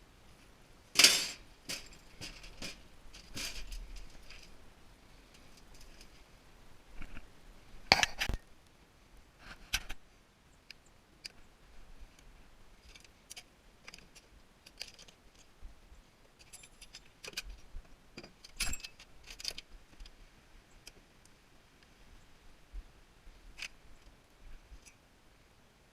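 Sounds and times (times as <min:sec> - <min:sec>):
metal tools clinking: 0:16.4 - 0:17.1, 0:18.5 - 0:19.6.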